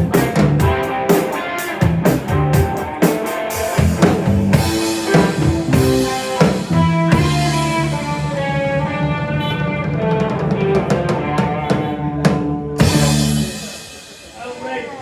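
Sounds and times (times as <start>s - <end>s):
bass guitar: 0.0s - 14.5s
electric guitar: 0.0s - 14.6s
drum kit beat: 0.0s - 15.0s
cymbals crashing: 12.8s - 15.0s.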